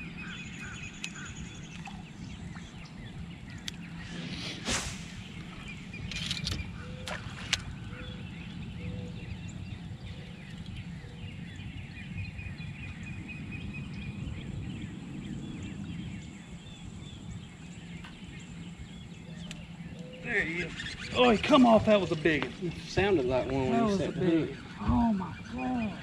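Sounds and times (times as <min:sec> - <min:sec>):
songbirds chirping: 0:00.0 - 0:26.0
steady low rumble: 0:00.0 - 0:26.0
sharp click: 0:06.1 - 0:06.6.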